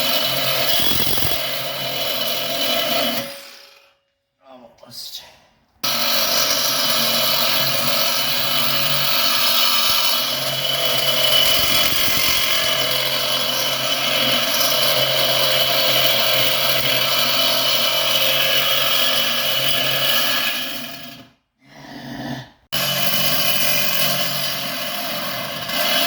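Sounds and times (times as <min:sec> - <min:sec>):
power tool whirring: 0:00.0 - 0:04.0, 0:05.8 - 0:21.2.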